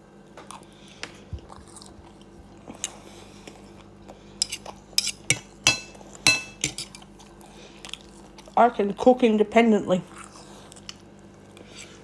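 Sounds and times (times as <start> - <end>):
person chewing food: 0.4 - 6.2, 6.9 - 8.6, 10.1 - 12.0.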